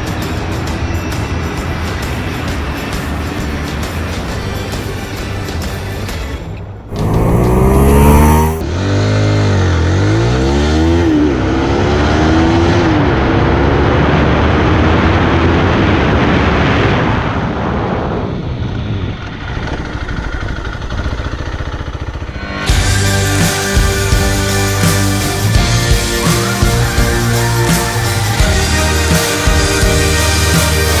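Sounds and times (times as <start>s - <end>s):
music: 0.0s - 8.6s, 22.4s - 31.0s
motorcycle accelerating hard: 6.9s - 25.5s
wind roar: 12.3s - 21.0s.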